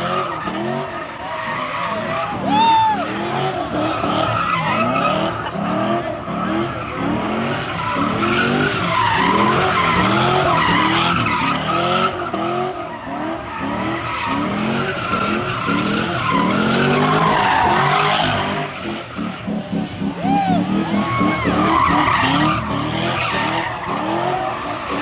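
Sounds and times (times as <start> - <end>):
car engine revving: 0.0 - 25.0
tyres squealing: 19.7 - 25.0.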